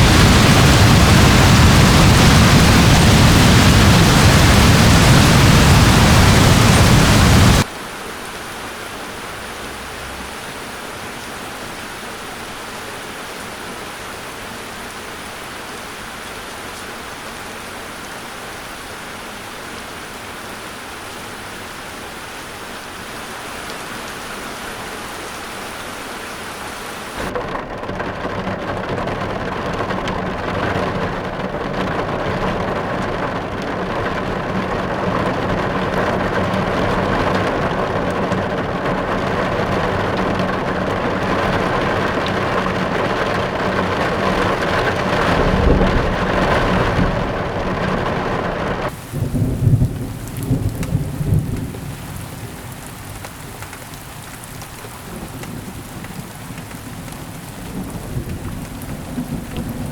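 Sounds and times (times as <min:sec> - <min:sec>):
low rumble: 0:00.0 - 0:07.6, 0:45.1 - 0:48.9
rain hissing: 0:00.0 - 0:27.4, 0:28.6 - 0:59.9
heavy rain: 0:00.0 - 0:59.9.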